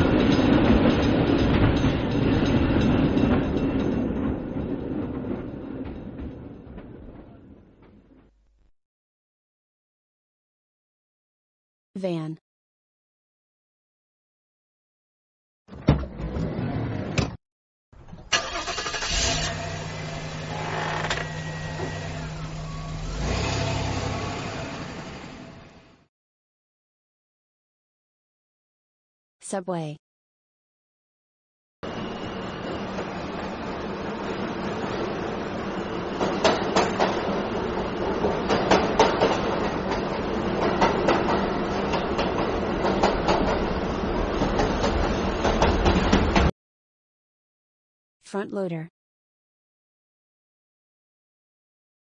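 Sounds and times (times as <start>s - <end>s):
wheels clacking over rail joints: 0.0s - 8.3s, 36.0s - 46.5s
metro train rumbling: 0.0s - 8.4s, 21.3s - 26.0s, 31.8s - 46.5s
van engine starting and idling: 18.0s - 26.0s.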